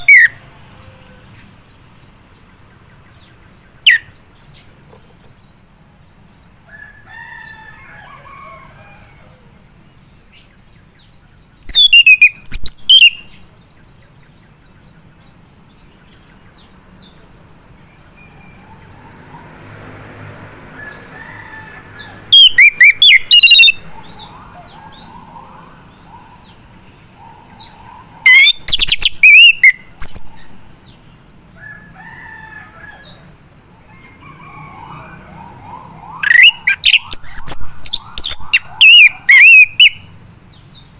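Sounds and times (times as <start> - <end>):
soft bird twittering: 0.0 - 0.4, 21.9 - 30.6, 35.4 - 40.8.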